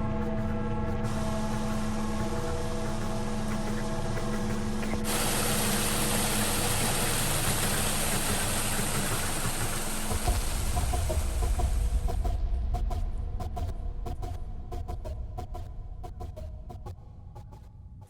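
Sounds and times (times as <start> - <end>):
engine running: 1.1 - 12.2
loud steady hiss: 1.1 - 12.2.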